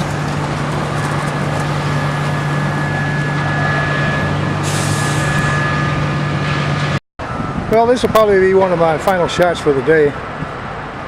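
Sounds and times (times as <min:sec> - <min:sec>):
heavy vehicle engine running: 0:00.0 - 0:07.7
air brake hiss: 0:04.6 - 0:05.4.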